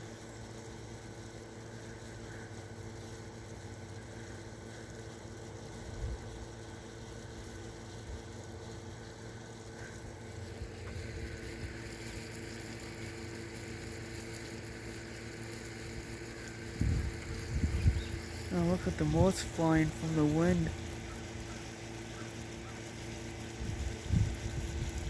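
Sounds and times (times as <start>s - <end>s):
air conditioner humming: 0.0s - 25.0s
wind buffeting microphone: 16.8s - 18.3s, 23.6s - 25.0s.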